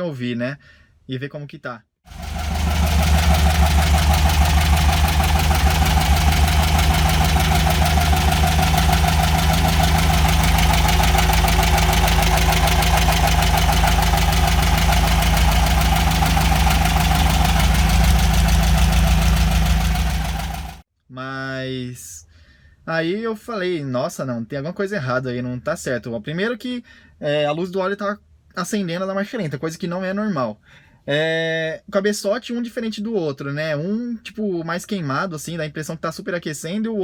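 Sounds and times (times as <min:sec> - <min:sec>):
car engine idling: 0:02.1 - 0:20.8
dry scraping in engine: 0:02.1 - 0:20.8.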